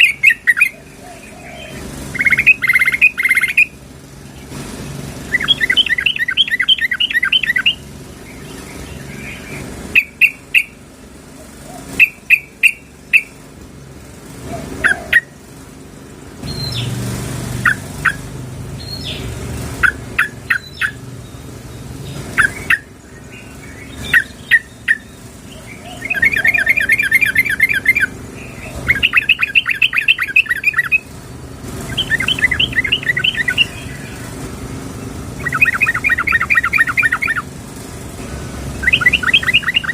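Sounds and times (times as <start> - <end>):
bird bubbling rattling calls: 0.0 - 10.8, 22.0 - 37.6, 38.7 - 39.9.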